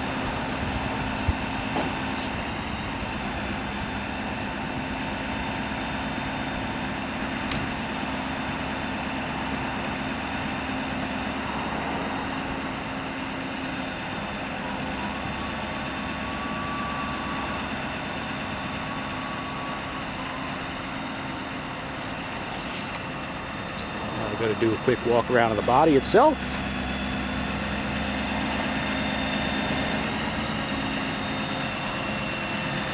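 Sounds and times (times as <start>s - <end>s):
diesel engine drone: 0.0s - 32.9s
steady whine: 0.0s - 32.9s
faint higher tone: 11.3s - 23.1s.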